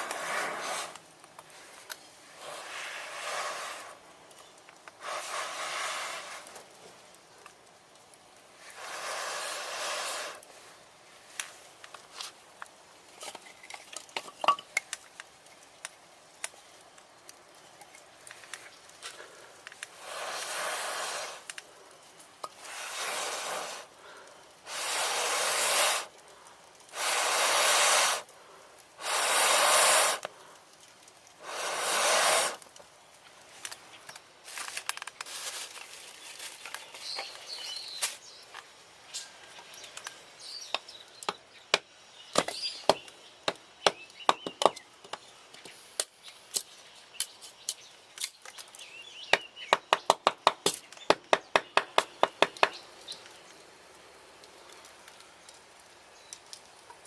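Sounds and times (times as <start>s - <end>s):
air blowing into campfire: 0.0s - 43.2s
fire crackling: 0.0s - 57.0s.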